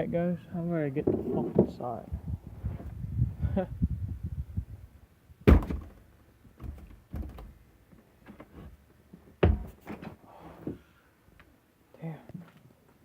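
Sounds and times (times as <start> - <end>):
door knocks and thuds: 5.4 - 6.0, 6.6 - 7.5, 9.4 - 10.1.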